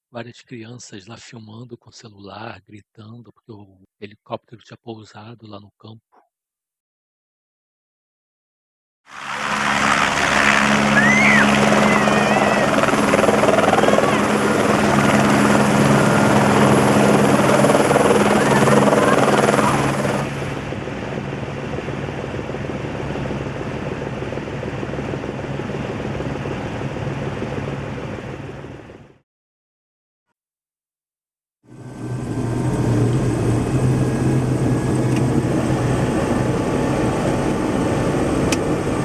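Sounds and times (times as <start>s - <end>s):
helicopter turbine and rotor drone: 9.1s - 29.2s, 31.7s - 39.0s
people shouting: 10.4s - 14.8s, 17.4s - 20.0s.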